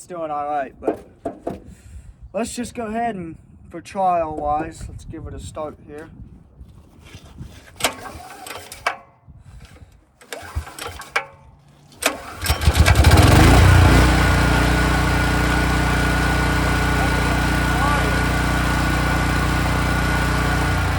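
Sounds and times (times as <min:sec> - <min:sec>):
sharp clicks and knocks: 0:00.8 - 0:01.7
gasoline engine cranking and running: 0:07.7 - 0:20.9.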